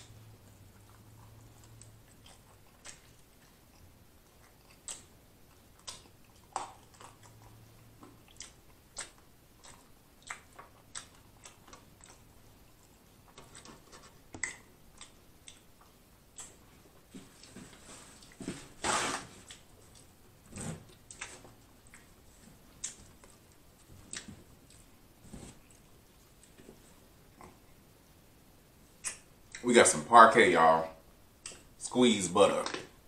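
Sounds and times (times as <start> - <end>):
chewing and lip smacks: 0.0 - 18.4, 19.4 - 27.8, 28.9 - 29.6
fingers being licked: 0.5 - 13.4, 29.0 - 29.6.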